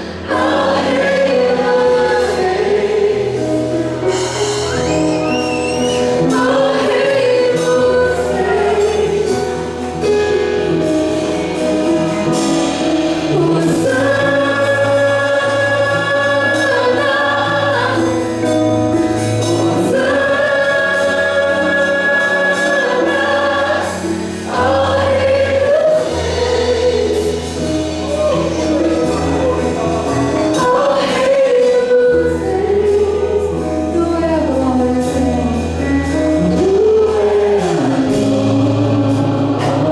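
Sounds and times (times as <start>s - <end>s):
band with sustained bass notes: 0.0s - 39.9s
gospel voices singing: 0.0s - 39.9s.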